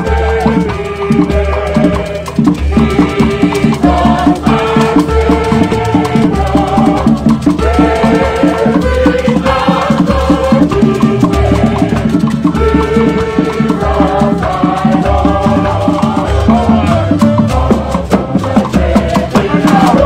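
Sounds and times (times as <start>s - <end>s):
percussion band music: 0.0s - 20.0s.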